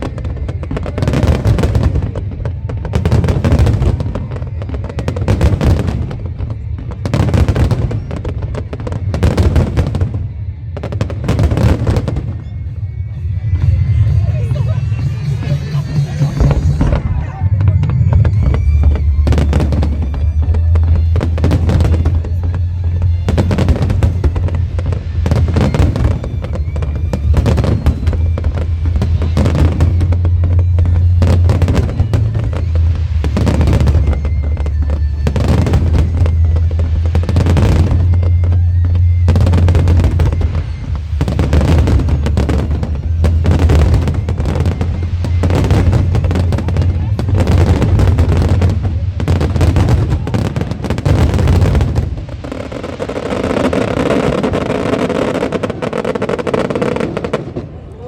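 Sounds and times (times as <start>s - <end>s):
fireworks bursting: 0.0s - 58.0s
loud music with heavy bass: 13.1s - 26.6s, 34.8s - 52.2s.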